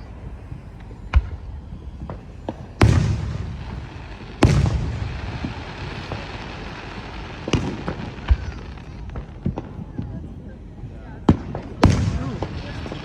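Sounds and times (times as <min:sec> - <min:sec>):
firework booms: 0:00.4 - 0:10.4, 0:11.2 - 0:13.0
firework pops and crackle: 0:00.7 - 0:10.4, 0:11.2 - 0:13.0.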